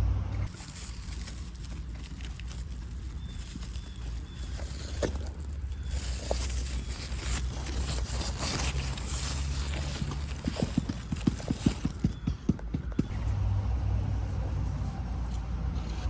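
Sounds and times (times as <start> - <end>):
quick run of knocks: 10.0 - 13.1.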